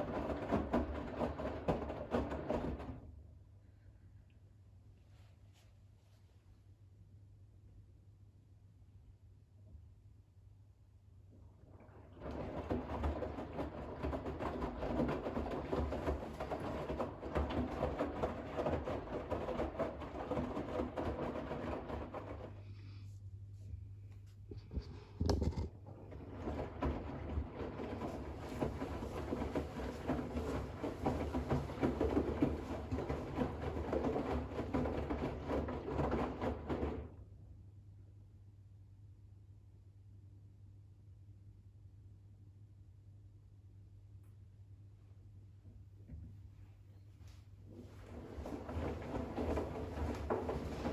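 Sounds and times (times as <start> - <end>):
washing machine drum tumbling: 0.0 - 3.2, 12.0 - 22.6, 25.8 - 37.3, 47.7 - 50.9.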